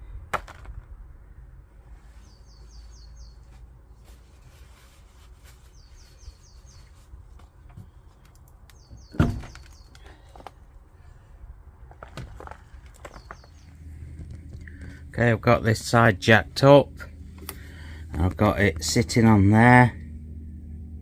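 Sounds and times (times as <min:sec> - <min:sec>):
bird chirping: 0:02.1 - 0:03.6, 0:05.6 - 0:07.1, 0:07.8 - 0:10.2, 0:13.0 - 0:14.8
loud thunk: 0:09.1 - 0:09.6.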